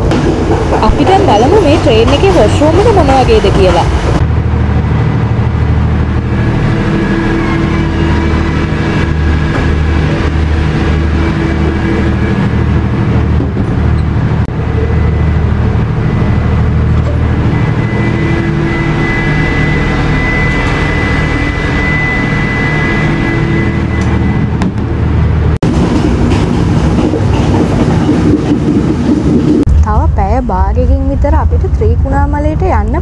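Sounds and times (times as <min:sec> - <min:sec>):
train low rumble: 0:00.0 - 0:33.0
thin high whine: 0:14.5 - 0:24.6.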